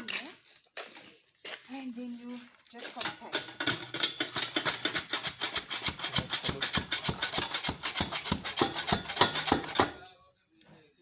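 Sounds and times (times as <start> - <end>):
gritty tamping strokes: 2.7 - 10.0.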